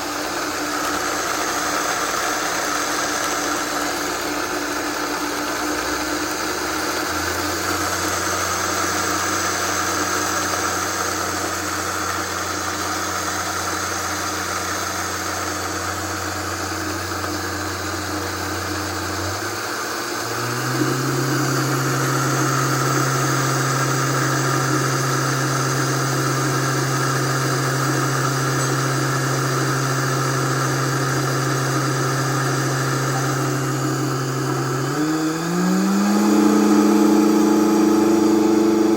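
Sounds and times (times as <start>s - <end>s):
blender motor humming: 0.0s - 38.9s.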